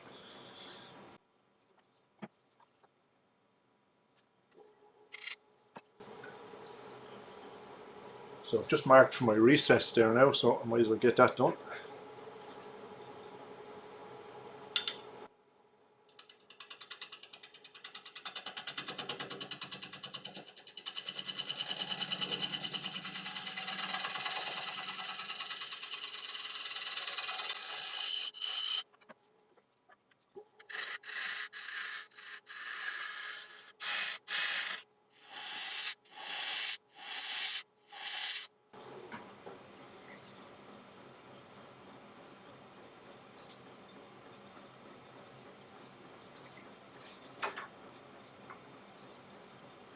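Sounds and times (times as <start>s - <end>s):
lathe tool cutting wood: 20.8s - 28.8s, 30.7s - 36.8s.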